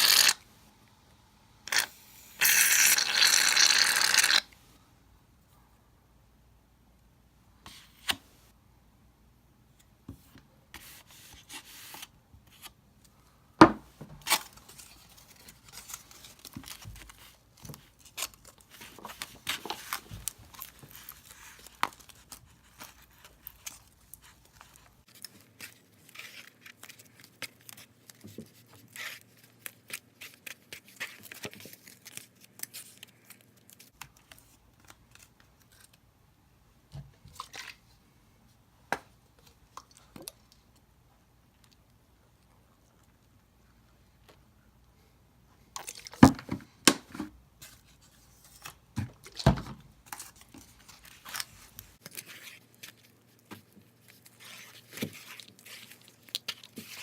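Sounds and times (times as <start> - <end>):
clicks scrapes and crinkling: 14.2 - 36.0, 50.1 - 57.0.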